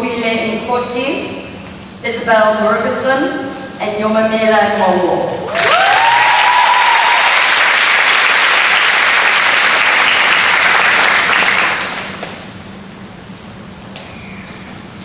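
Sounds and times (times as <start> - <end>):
audience applauding: 5.5 - 12.4.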